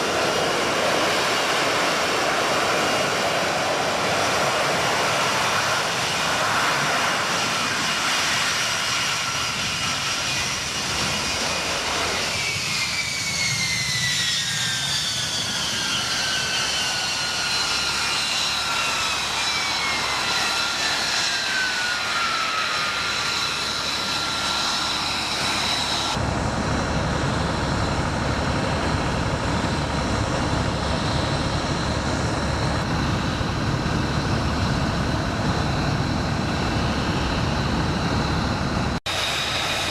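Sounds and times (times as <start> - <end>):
jet engine whine: 0.0 - 39.9
low rough engine rumble: 26.2 - 39.0.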